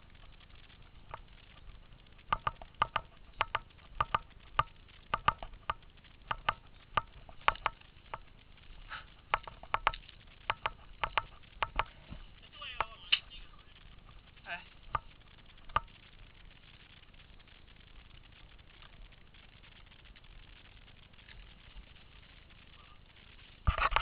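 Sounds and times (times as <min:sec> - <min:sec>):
paintball markers popping: 0:01.0 - 0:08.3, 0:08.9 - 0:11.9.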